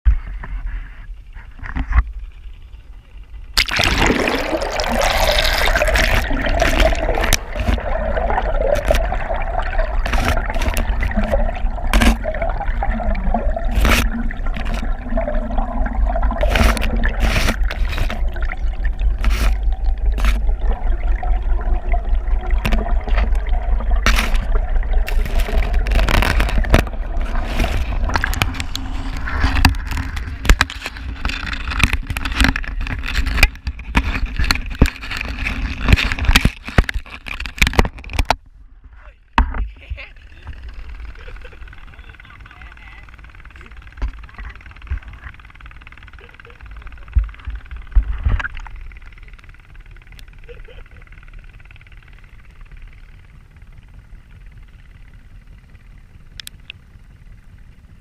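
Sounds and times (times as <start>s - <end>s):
low rumble: 2.0s - 32.9s
water gurgling underwater: 3.5s - 33.4s.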